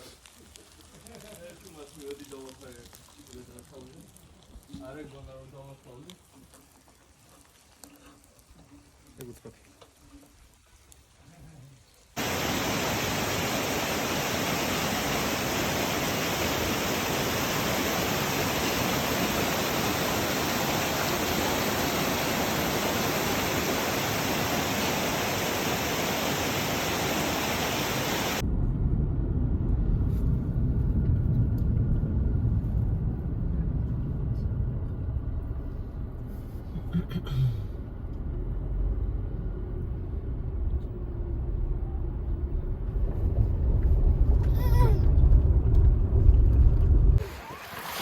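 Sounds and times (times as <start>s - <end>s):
waterfall rushing: 12.2s - 28.4s
low rumble: 28.2s - 37.0s, 37.6s - 47.2s.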